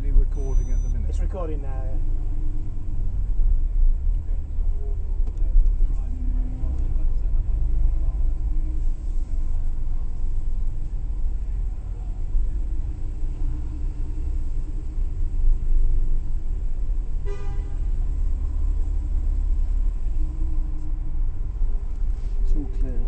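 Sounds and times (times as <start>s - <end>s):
car engine low rumble: 0.0s - 23.0s
short beep: 0.2s - 1.2s.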